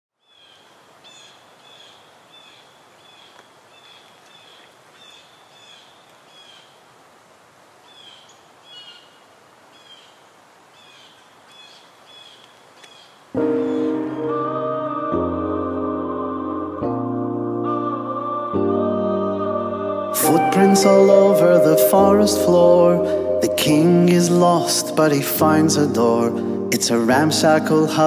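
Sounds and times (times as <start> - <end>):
faint woodland hiss: 0.2 - 14.3.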